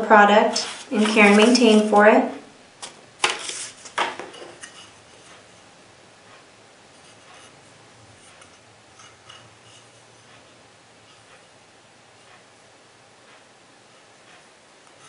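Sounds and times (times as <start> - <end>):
packaging rubbing: 2.8 - 4.2.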